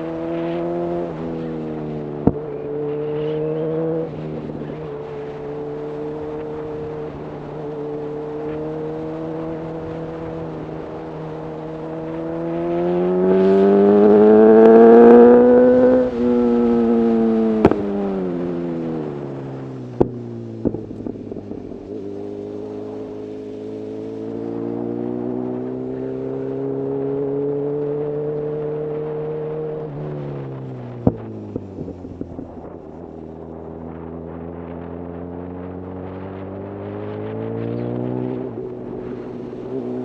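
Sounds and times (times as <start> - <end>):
motorcycle exhaust note: 0.0 - 40.0
exhaust cracks: 13.7 - 23.0.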